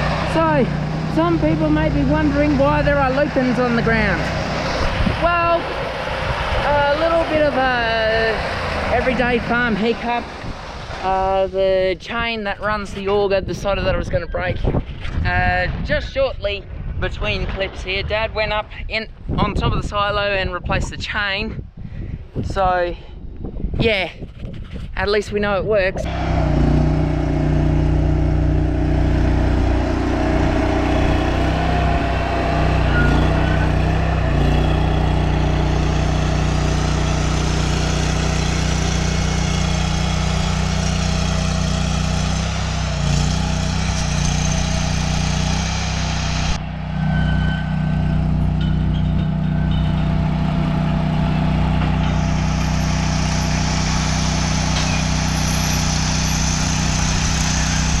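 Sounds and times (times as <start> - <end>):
engine humming: 0.0 - 13.6, 26.0 - 58.0.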